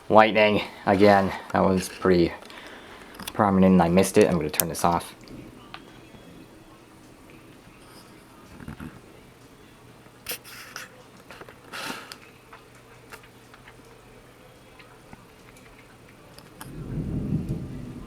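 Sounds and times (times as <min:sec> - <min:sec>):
small clicks and scrapes: 0:00.9 - 0:03.4, 0:07.7 - 0:09.1, 0:10.3 - 0:14.1
rumble of thunder: 0:16.6 - 0:18.0.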